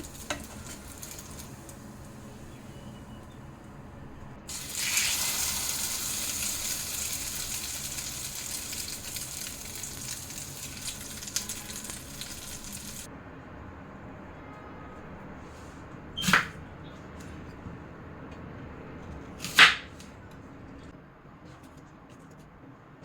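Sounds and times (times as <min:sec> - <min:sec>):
food sizzling in a pan: 0:00.0 - 0:01.9, 0:04.5 - 0:13.1.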